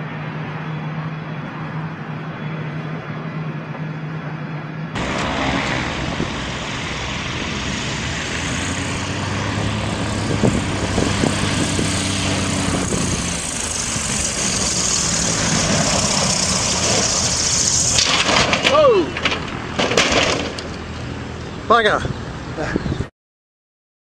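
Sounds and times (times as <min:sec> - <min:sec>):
aircraft engine running: 0:00.0 - 0:18.4
broad rushing noise: 0:01.6 - 0:22.7.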